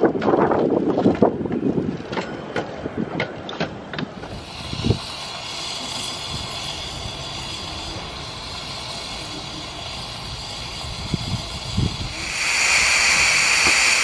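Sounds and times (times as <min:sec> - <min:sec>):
railway coaches rolling past: 0:01.5 - 0:14.0
steam locomotive hissing: 0:04.2 - 0:14.0.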